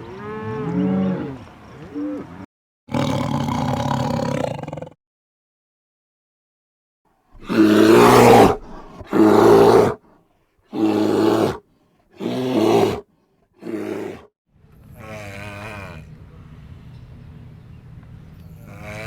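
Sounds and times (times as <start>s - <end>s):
large animal roaring: 7.4s - 10.0s, 10.8s - 11.6s, 12.2s - 13.0s, 13.6s - 14.3s.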